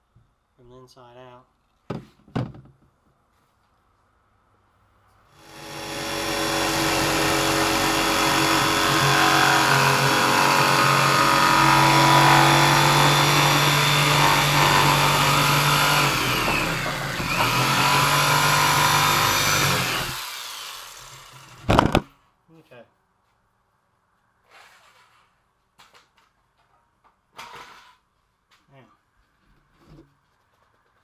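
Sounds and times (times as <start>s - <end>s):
power tool cutting plywood: 5.4s - 22.0s.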